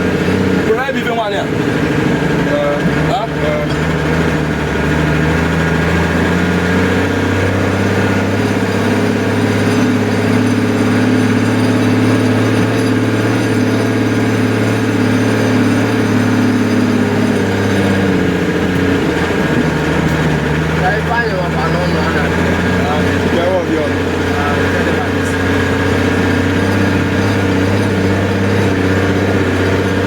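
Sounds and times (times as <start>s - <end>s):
large engine running: 0.0s - 30.0s.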